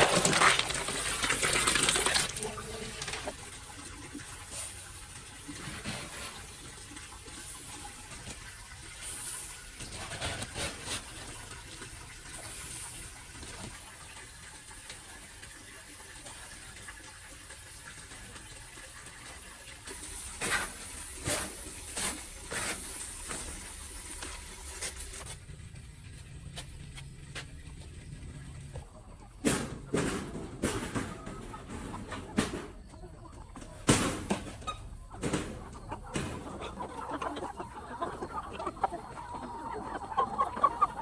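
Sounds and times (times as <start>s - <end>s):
water running: 0.0s - 25.4s
knocks and clatters: 29.4s - 32.8s.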